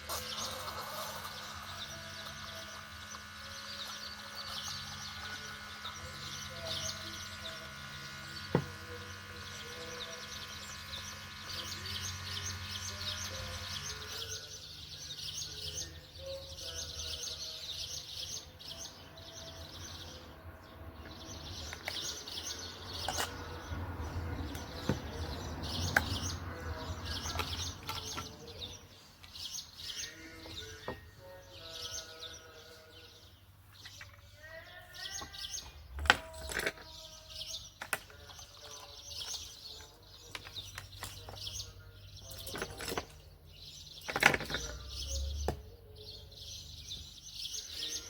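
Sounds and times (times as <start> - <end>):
many-toned hum: 0.0 - 17.8
small birds chirping: 0.0 - 48.0.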